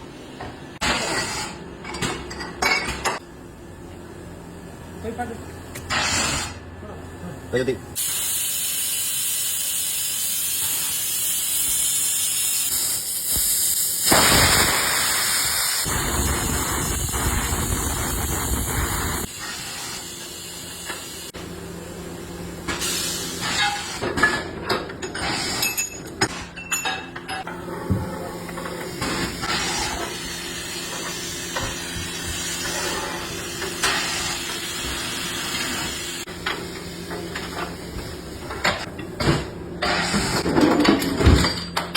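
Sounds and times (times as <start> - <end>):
compressed air hissing: 8.0 - 21.4.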